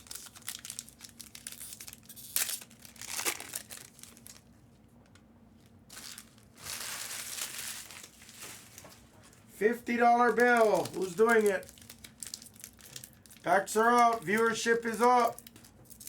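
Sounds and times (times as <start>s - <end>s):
plastic tearing rip: 0.0s - 4.4s
plastic packaging crinkling: 0.0s - 4.6s, 5.6s - 16.0s.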